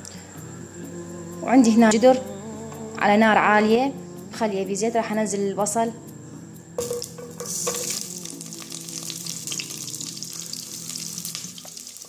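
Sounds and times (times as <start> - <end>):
onion sizzling in hot oil: 6.8 - 12.0.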